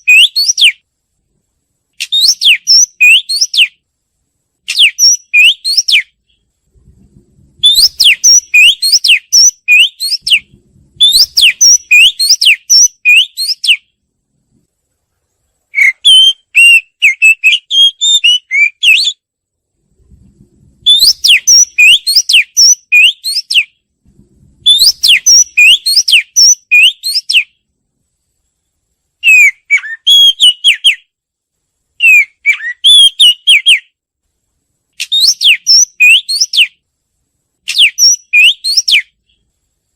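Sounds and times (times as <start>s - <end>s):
bird singing whistled phrases: 0.0s - 0.8s, 2.0s - 3.8s, 4.7s - 6.4s, 7.6s - 13.9s, 15.7s - 19.2s, 20.8s - 23.7s, 24.6s - 27.6s, 29.2s - 31.1s, 32.0s - 33.9s, 35.0s - 36.8s, 37.7s - 39.4s.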